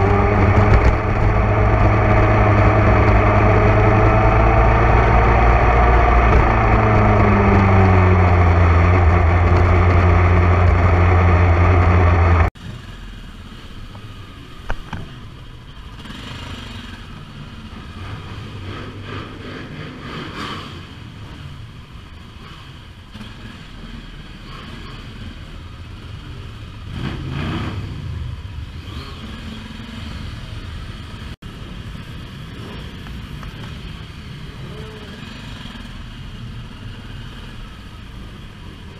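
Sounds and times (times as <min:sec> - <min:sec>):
motorcycle engine revving: 0:00.0 - 0:12.6, 0:22.4 - 0:31.4
traffic noise: 0:00.0 - 0:38.9.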